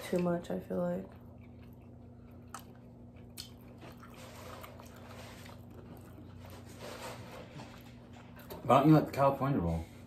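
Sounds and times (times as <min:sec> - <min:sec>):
faint chewing mouth sounds: 0:00.0 - 0:06.8
steady low hum: 0:00.0 - 0:10.0.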